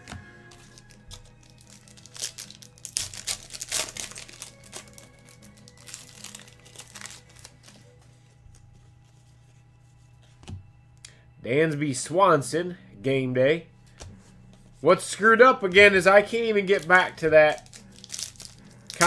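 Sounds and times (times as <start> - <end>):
wrapper crinkling and tearing: 0.0 - 9.4, 15.8 - 19.0.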